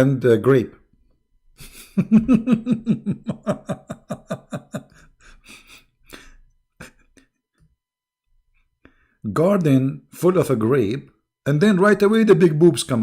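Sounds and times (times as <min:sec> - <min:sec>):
man laughing: 0:01.6 - 0:07.4.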